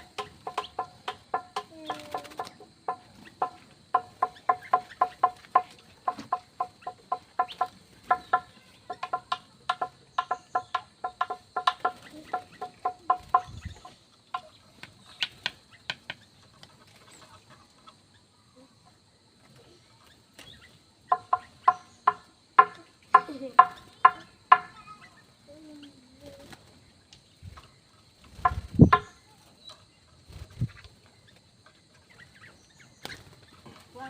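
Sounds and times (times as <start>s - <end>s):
birds clucking: 0.0s - 34.0s.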